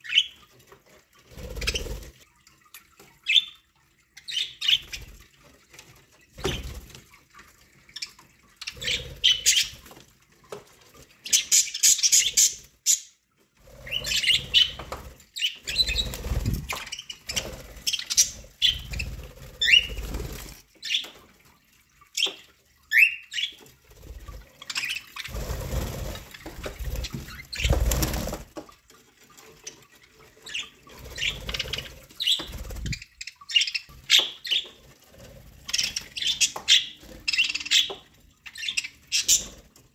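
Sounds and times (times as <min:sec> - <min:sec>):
wing fluttering: 0:01.2 - 0:02.2, 0:13.7 - 0:20.7, 0:23.6 - 0:28.7, 0:30.5 - 0:33.2.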